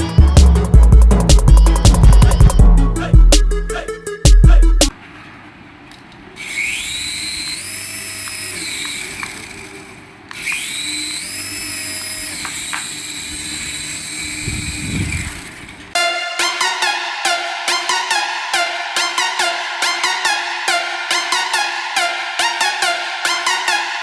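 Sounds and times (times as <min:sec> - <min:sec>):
toy motor whining: 0:06.4 - 0:16.0.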